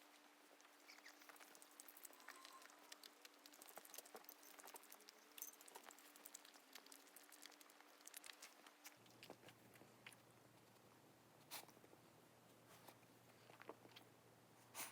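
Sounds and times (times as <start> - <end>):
faint steady hum: 0.0 - 14.9
dog gnawing crunches: 0.8 - 10.3.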